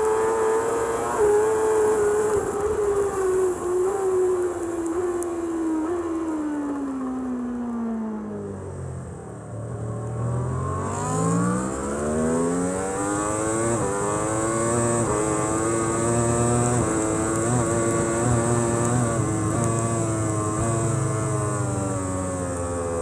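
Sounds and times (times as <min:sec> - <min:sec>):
motorcycle engine accelerating: 0:07.8 - 0:23.0.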